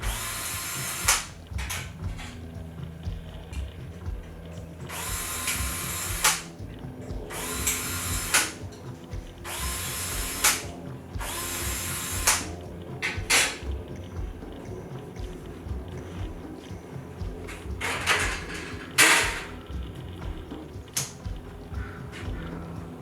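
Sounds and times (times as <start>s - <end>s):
power drill bursts: 0.0s - 2.3s, 4.9s - 6.5s, 7.3s - 8.6s, 9.4s - 12.5s.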